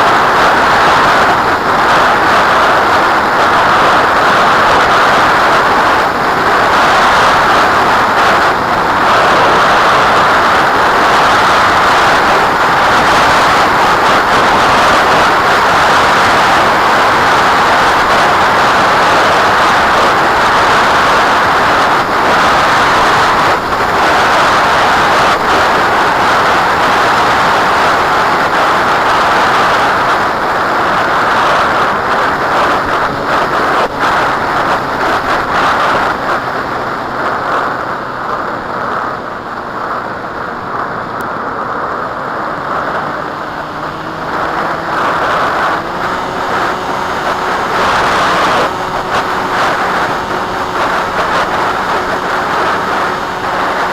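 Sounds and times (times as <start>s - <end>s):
strong wind on microphone: 0.0s - 53.9s.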